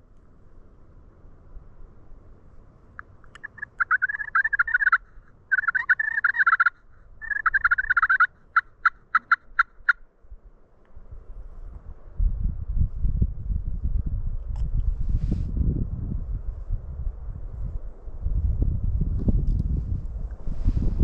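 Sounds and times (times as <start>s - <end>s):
turkey calling: 3.0s - 10.0s.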